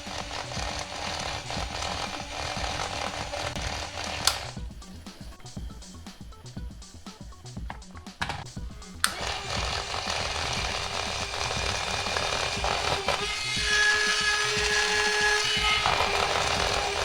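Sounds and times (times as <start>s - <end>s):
toy car motor whining: 0.0s - 4.7s, 9.0s - 17.0s.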